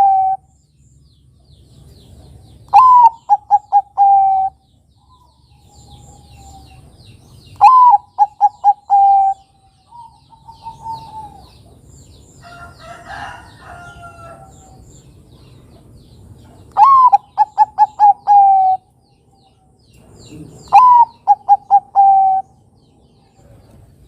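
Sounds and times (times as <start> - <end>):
dove cooing: 0.0 - 0.5, 2.7 - 4.6, 7.6 - 11.8, 16.8 - 18.9, 20.4 - 22.5.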